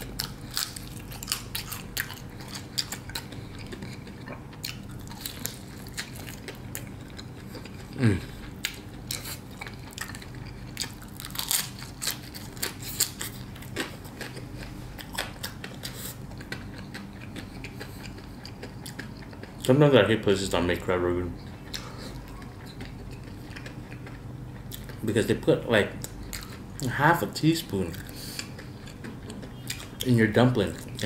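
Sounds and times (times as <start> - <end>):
crunchy chewing: 0.0 - 19.7, 21.4 - 25.2, 26.0 - 27.0, 27.6 - 31.0
person humming: 8.0 - 8.4.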